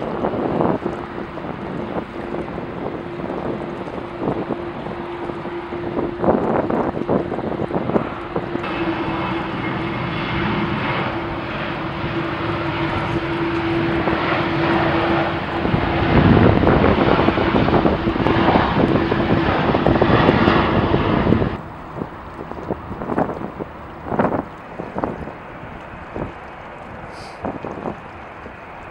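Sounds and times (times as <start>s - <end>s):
jet airliner engines passing: 0.0s - 28.9s
wind on microphone: 0.0s - 28.9s.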